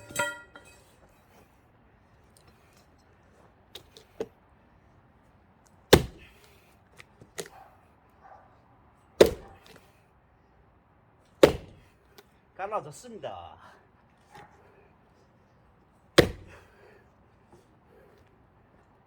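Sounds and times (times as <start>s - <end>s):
heavy blows splitting log: 0.0s - 0.9s, 5.9s - 6.6s, 9.2s - 9.8s, 11.4s - 12.0s, 16.2s - 17.0s.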